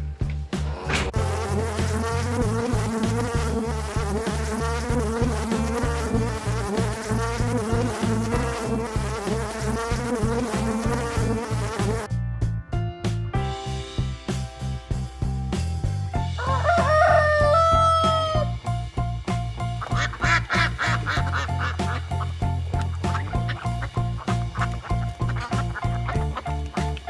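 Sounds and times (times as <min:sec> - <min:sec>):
background music with bass beat: 0:00.0 - 0:27.0
flying insect buzzing: 0:01.2 - 0:12.1.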